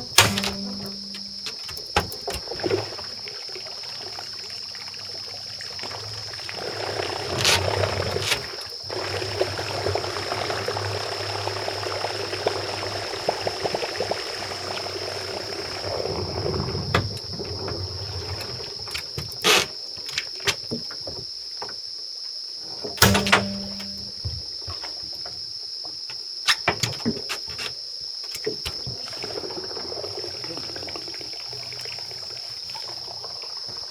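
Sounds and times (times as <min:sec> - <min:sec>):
low hum: 0:00.0 - 0:01.5
thin high whine: 0:00.0 - 0:01.6
sharp knocks: 0:00.0 - 0:02.2, 0:23.0 - 0:24.5
water splashing and trickling: 0:00.0 - 0:21.8, 0:26.6 - 0:33.9.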